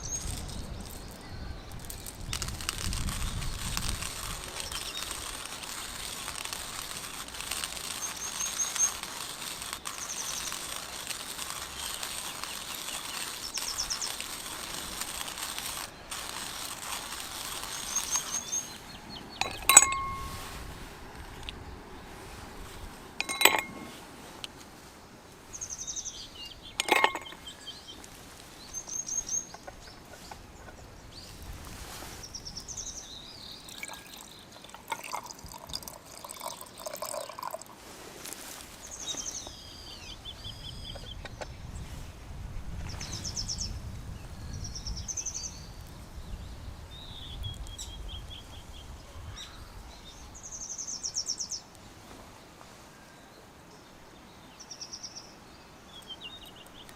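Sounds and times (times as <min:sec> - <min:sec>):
birds chirping and trilling: 0:00.0 - 0:20.5, 0:25.5 - 0:31.4, 0:32.2 - 0:37.6, 0:38.8 - 0:41.8, 0:42.9 - 0:51.7
sharp ringing clinks: 0:19.4 - 0:20.6, 0:23.2 - 0:24.0, 0:26.8 - 0:27.4.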